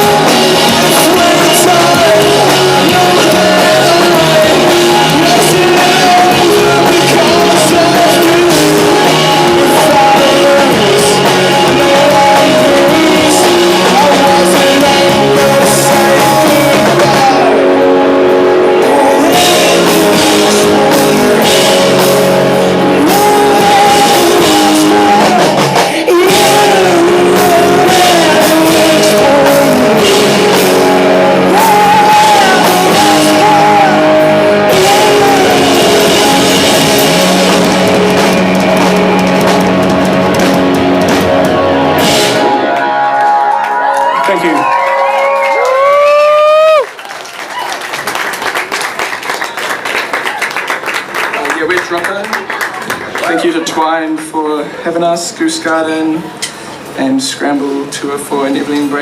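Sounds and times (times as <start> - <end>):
person singing: 0.0 - 39.4
rock band playing: 0.0 - 54.8.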